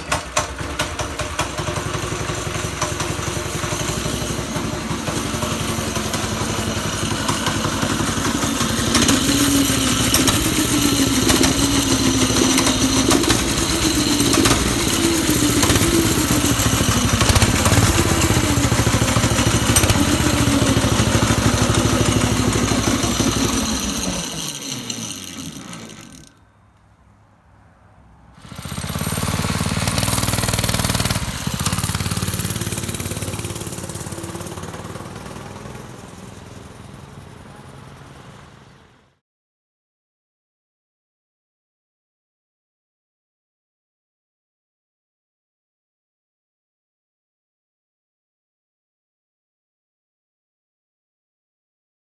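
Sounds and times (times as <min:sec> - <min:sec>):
mini bike engine revving: 0:00.0 - 0:26.5, 0:28.4 - 0:39.0.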